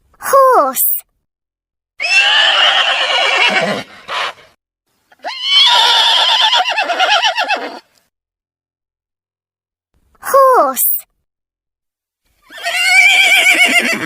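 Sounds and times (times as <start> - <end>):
horse neighing: 2.0 - 4.5, 5.1 - 7.9, 12.4 - 14.0.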